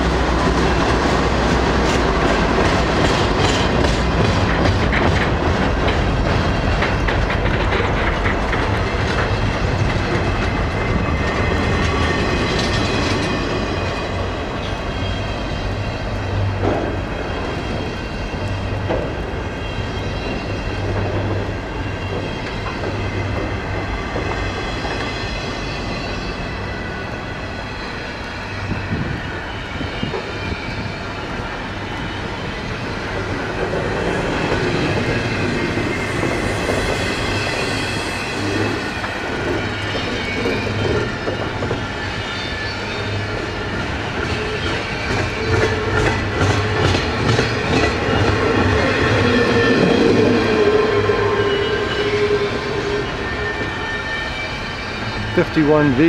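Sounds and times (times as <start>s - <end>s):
train wheels clacking over rail joints: 0.0s - 26.2s, 29.9s - 53.7s
high-pitched wheel squeal: 34.3s - 55.4s.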